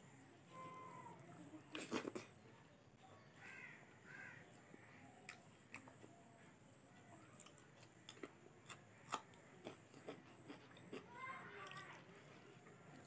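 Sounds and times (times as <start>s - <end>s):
person chewing food: 4.5s - 6.2s, 7.2s - 13.0s.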